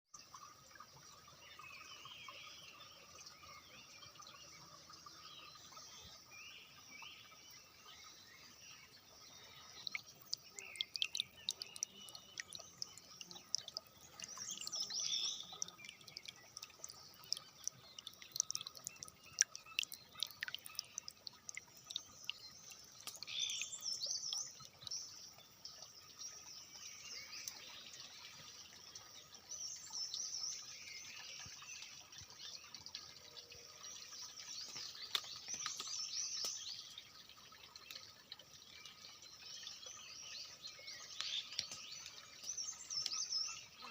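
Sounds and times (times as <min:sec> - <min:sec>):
birds chirping: 0:01.4 - 0:43.9
sharp ticks or drips: 0:09.0 - 0:30.3, 0:31.0 - 0:43.9.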